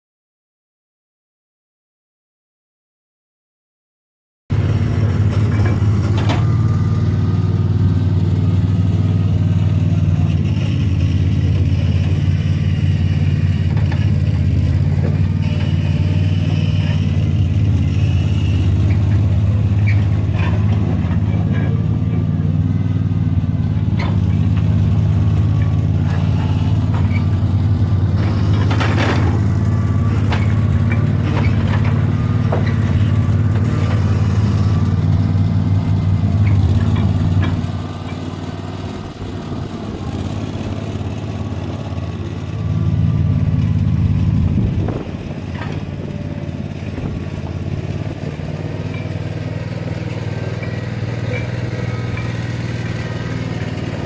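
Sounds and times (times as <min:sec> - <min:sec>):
sawmill engine running: 0:04.5 - 0:54.0
knocks and clatter: 0:05.2 - 0:06.6, 0:24.0 - 0:34.0, 0:43.7 - 0:46.1.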